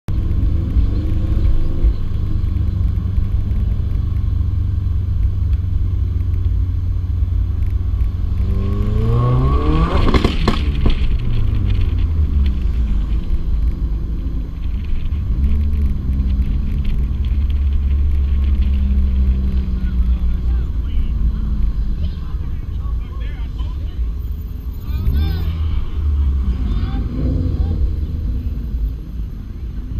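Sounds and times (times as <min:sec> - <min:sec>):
engine revving: 0:00.1 - 0:14.3, 0:24.8 - 0:29.9
exhaust pops: 0:00.1 - 0:21.8
car engine idling: 0:00.1 - 0:29.9.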